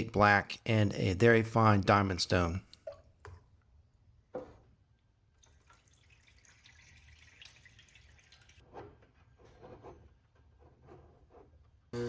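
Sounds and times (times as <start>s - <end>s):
faint water dripping: 2.6s - 4.0s, 5.0s - 8.6s.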